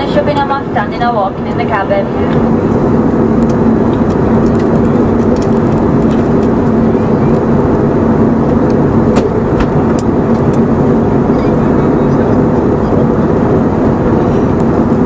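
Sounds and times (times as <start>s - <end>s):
airplane cabin airflow and engine: 0.0s - 15.0s
steady low hum: 0.0s - 15.0s.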